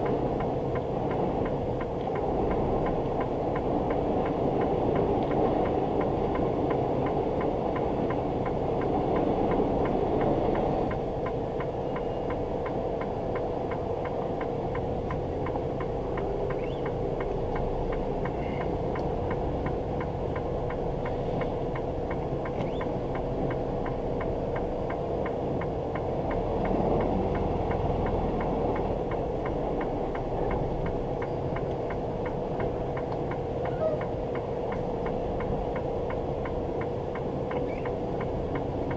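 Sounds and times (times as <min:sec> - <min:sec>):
truck engine humming: 0:00.0 - 0:38.9.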